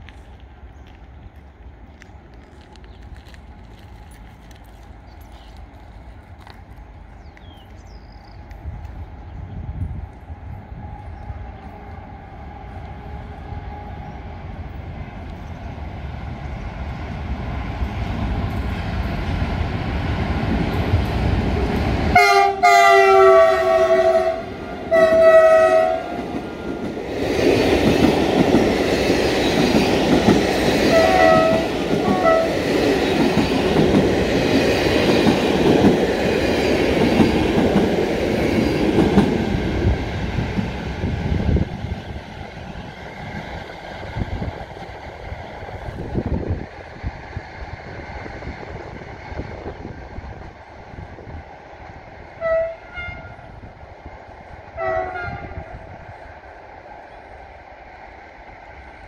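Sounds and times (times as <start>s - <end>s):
electric locomotive rumble: 1.8s - 59.0s
multi-tone train horn: 10.9s - 14.3s, 22.1s - 27.0s, 30.8s - 32.7s, 52.4s - 53.6s, 54.7s - 55.9s
coaches clattering over rails: 24.7s - 46.8s.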